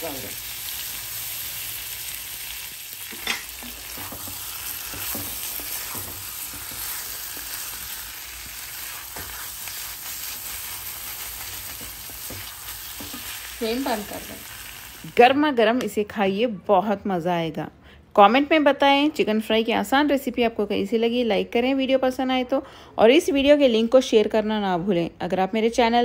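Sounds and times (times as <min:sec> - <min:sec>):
chicken sizzling in a pan: 0:00.0 - 0:15.2
spatula scraping and knocking pan: 0:03.1 - 0:13.4.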